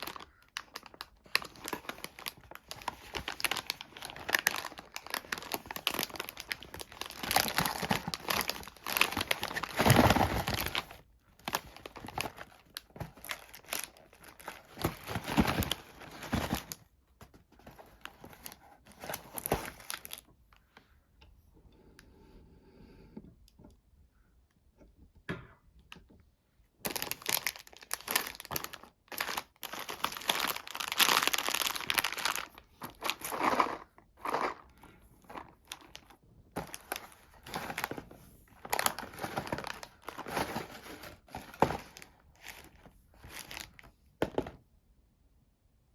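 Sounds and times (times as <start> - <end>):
sweet wrapper crinkling and tearing: 0.0 - 16.8, 17.7 - 20.3, 26.8 - 43.9.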